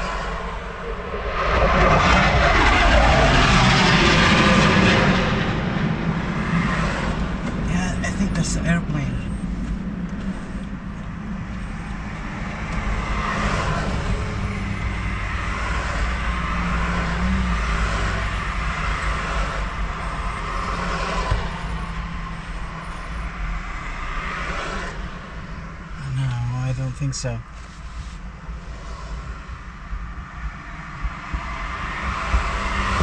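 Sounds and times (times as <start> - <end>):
motor vehicle rumble: 0.0 - 33.0.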